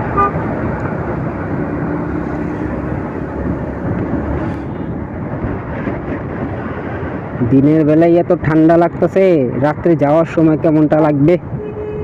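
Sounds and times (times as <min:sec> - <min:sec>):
motorcycle engine: 0:00.0 - 0:04.9
traffic noise: 0:00.0 - 0:12.0
wind rushing over microphone: 0:00.0 - 0:12.0.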